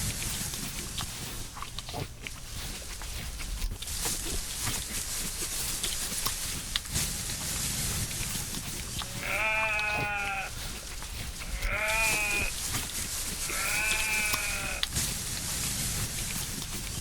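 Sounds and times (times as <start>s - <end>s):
goat or sheep bleating: 9.0s - 12.6s, 13.4s - 14.9s.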